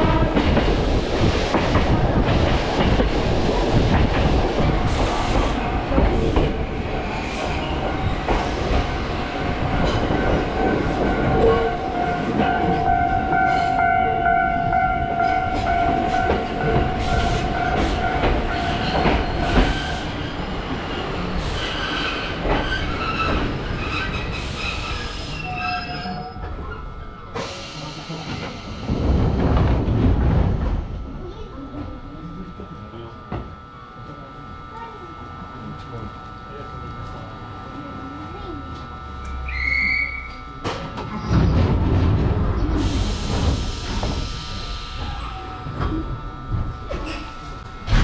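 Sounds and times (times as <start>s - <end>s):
train rolling rumble: 0.0s - 48.0s
high wheel squeal: 21.5s - 26.6s, 39.4s - 40.4s.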